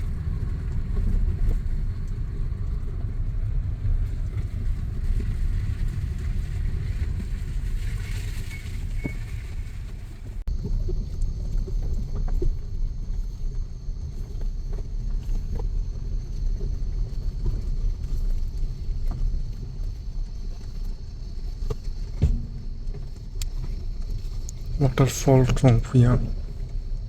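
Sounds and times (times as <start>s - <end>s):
vehicle rumbling on rough track: 0.0s - 27.0s
knocks and rattles: 22.1s - 26.6s.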